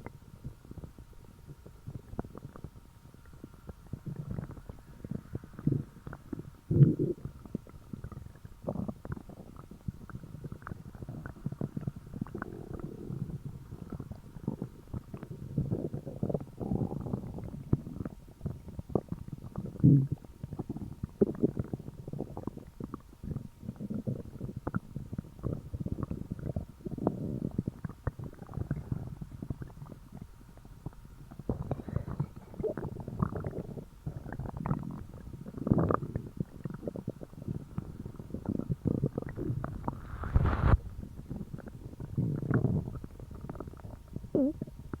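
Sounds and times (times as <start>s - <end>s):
stomach gurgling and rumbling: 0.0s - 45.0s.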